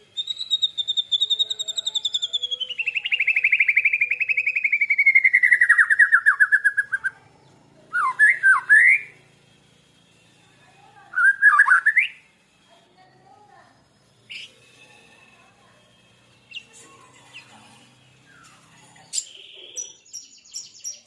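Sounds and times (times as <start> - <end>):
bird singing trills and whistles: 0.1 - 7.2, 7.9 - 9.2, 11.2 - 12.2, 18.3 - 21.0.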